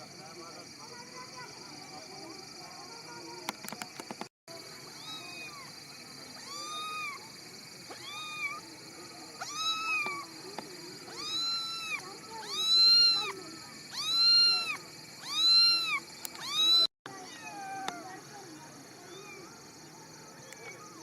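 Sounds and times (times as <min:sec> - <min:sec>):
kitten meowing: 0:05.0 - 0:05.7, 0:06.4 - 0:07.2, 0:07.9 - 0:08.6, 0:09.4 - 0:10.3, 0:11.1 - 0:18.0.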